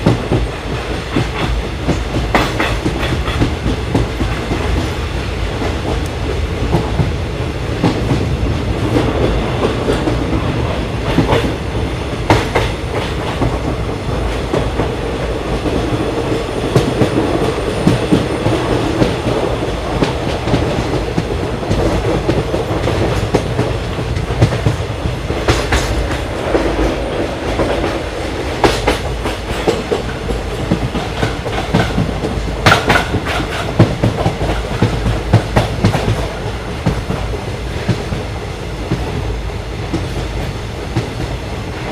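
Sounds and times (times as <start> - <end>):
wheels clicking over rail joints: 0.0 - 5.0, 12.3 - 38.2
train rumbling: 0.0 - 41.9.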